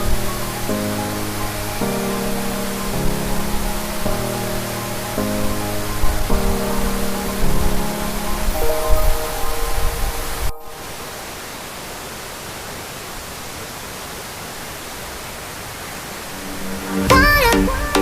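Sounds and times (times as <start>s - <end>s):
background music: 0.0s - 11.3s, 16.3s - 18.0s
waterfall rushing: 0.0s - 18.0s.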